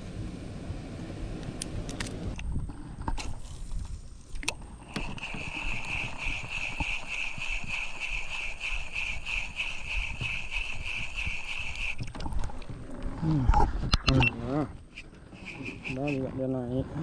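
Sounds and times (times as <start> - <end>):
fishing reel clicks: 4.4 - 12.0
fishing reel whirring: 4.8 - 12.1, 14.9 - 16.2.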